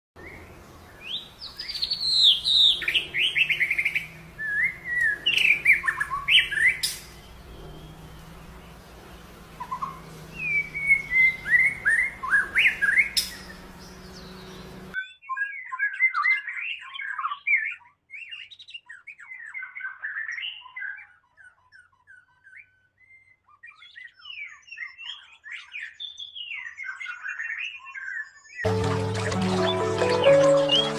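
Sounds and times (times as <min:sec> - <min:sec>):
bird twittering: 0:01.0 - 0:08.2, 0:09.6 - 0:28.2
songbird whistling: 0:09.6 - 0:18.4.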